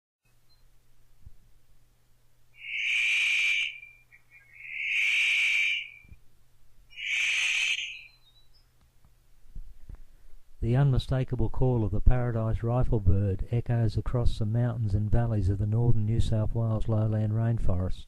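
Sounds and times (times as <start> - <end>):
bird rasping calls: 2.6 - 6.2, 6.9 - 8.3.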